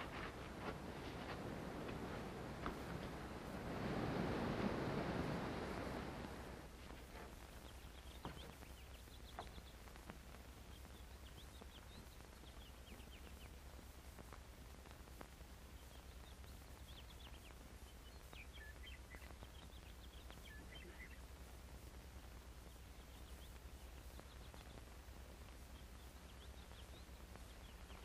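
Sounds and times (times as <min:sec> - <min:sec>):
steady low hum: 0:00.0 - 0:28.0
small birds chirping: 0:05.7 - 0:28.0.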